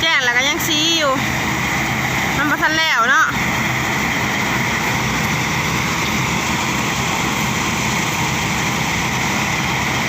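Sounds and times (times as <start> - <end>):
threshing machine running: 0.0 - 10.0.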